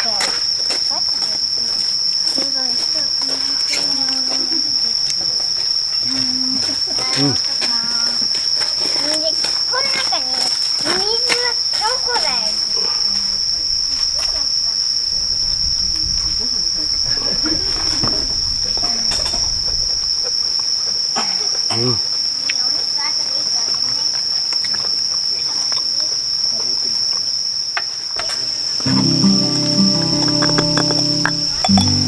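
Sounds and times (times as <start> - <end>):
insects trilling: 0.0 - 32.0
background music: 28.9 - 32.0.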